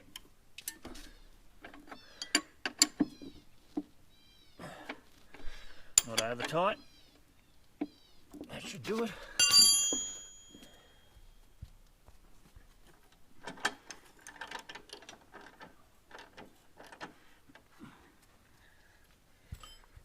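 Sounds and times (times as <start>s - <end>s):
metal tool clink: 9.4s - 11.0s.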